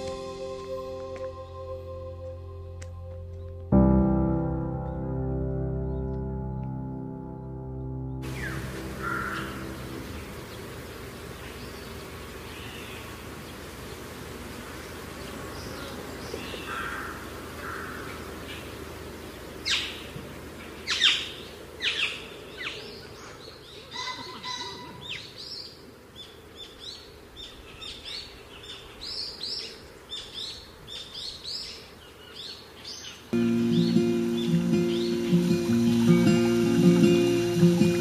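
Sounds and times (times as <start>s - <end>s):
music: 0.0s - 10.3s, 33.4s - 38.0s
outdoor background noise: 0.0s - 38.0s
small birds chirping: 8.2s - 38.0s.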